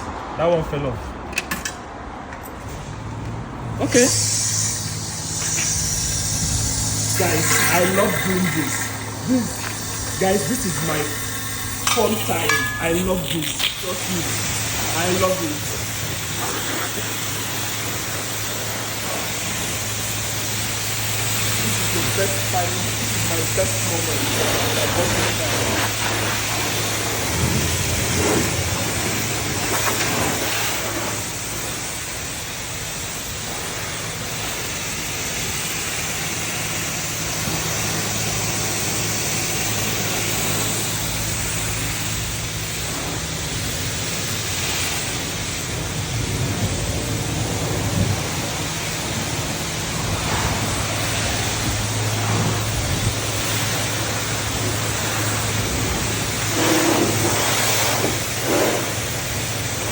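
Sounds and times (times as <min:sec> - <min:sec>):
low hum: 0:02.8 - 0:30.4
pressure washer spray hiss: 0:03.8 - 0:59.9.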